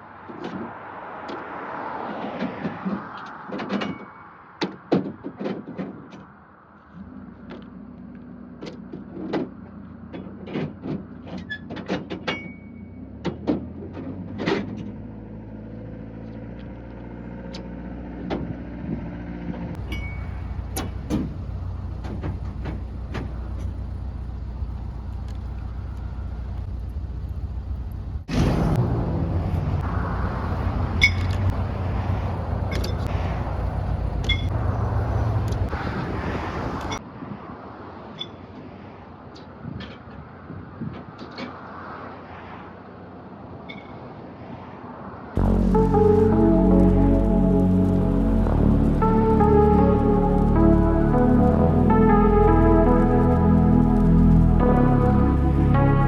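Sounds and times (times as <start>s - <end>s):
clanks and thunks of unloading: 2.3s - 6.4s, 8.5s - 15.0s, 19.8s - 27.0s
truck engine droning: 12.7s - 37.0s, 45.4s - 56.0s.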